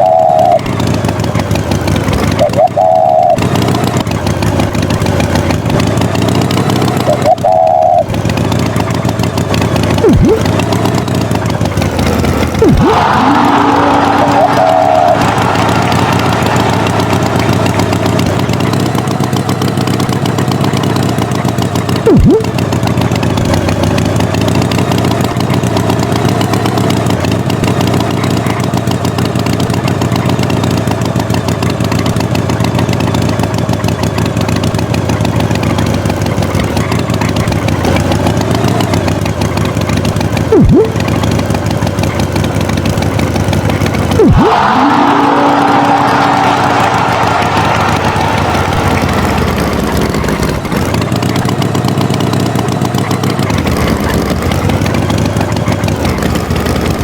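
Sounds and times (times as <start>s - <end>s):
tractor engine running: 0.0s - 57.0s
loud falling swoops: 10.0s - 10.5s, 12.6s - 17.8s, 22.1s - 22.5s, 40.5s - 41.0s, 44.2s - 50.6s.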